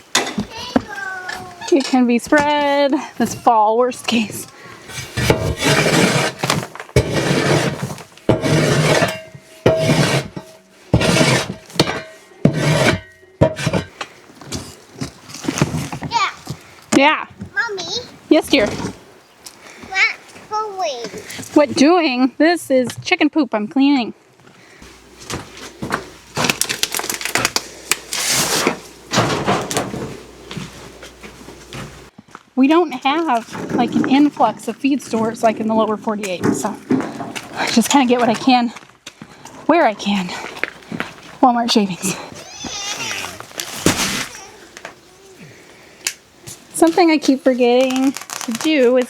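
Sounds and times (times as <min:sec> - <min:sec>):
hand tool scraping litter: 0:04.1 - 0:13.9, 0:28.1 - 0:29.0, 0:42.4 - 0:44.8.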